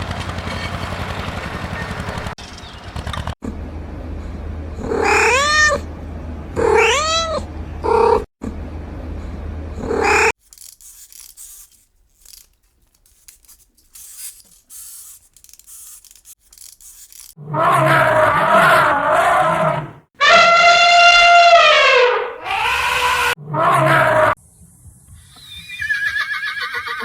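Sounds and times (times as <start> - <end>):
cat meowing: 5.0 - 5.8, 6.6 - 8.3.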